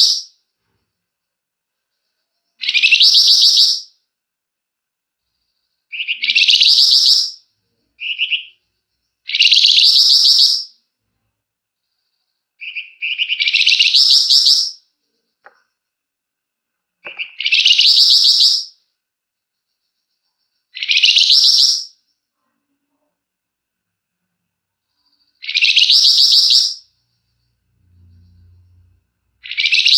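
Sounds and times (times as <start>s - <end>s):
songbird singing rapid bursts: 9.3s - 10.7s, 17.1s - 18.7s, 20.8s - 21.9s, 25.4s - 26.8s, 29.4s - 29.9s
short low bird chirp: 24.9s - 29.9s.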